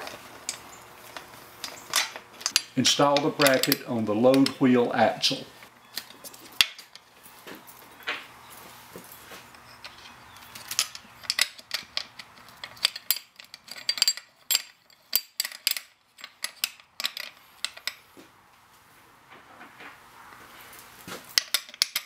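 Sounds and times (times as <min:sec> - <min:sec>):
wrenches clinking on metal frame: 0:00.5 - 0:07.0, 0:09.5 - 0:18.0, 0:21.3 - 0:22.0.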